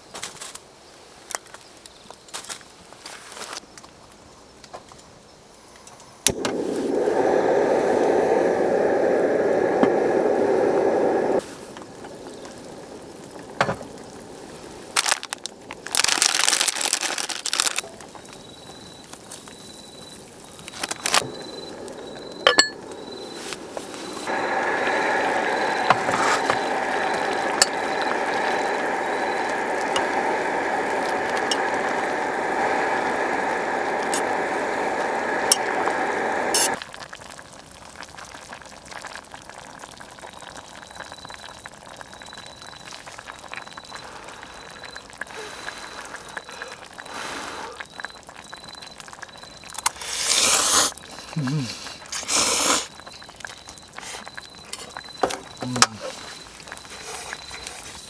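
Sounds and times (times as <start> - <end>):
gas stove hissing: 6.0 - 36.8, 39.4 - 58.0
cooking gear clinking: 20.4 - 36.8, 53.0 - 58.0.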